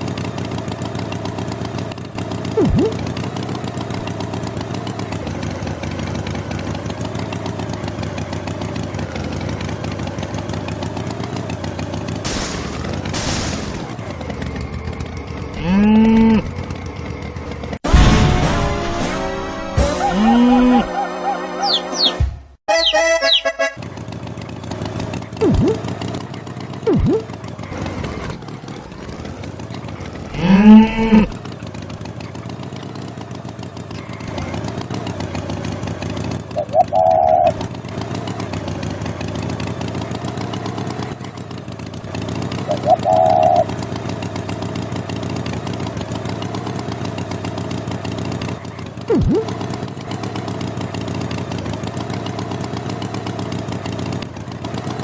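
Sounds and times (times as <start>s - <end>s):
engine hum: 0.0s - 55.0s
cow mooing: 15.6s - 16.5s, 20.0s - 22.1s, 30.3s - 31.3s
short high tones: 19.4s - 23.8s.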